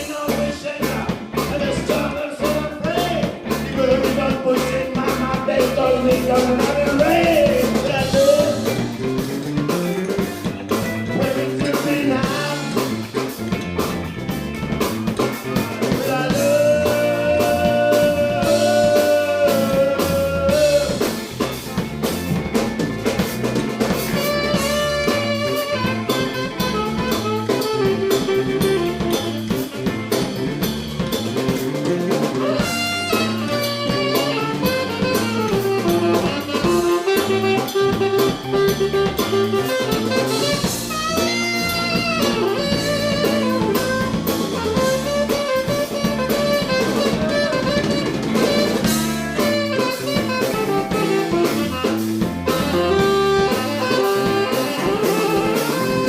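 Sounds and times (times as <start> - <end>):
drum kit: 0.0 - 56.0
electric guitar: 0.0 - 56.0.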